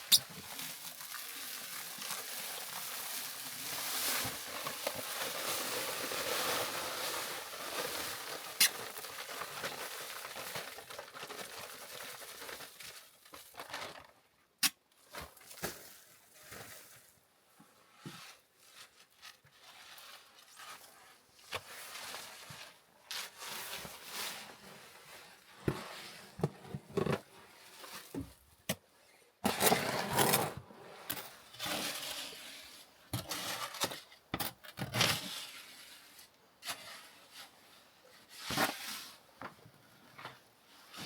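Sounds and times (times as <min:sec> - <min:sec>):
shovel scraping wet concrete: 0:29.5 - 0:30.6, 0:31.6 - 0:34.0.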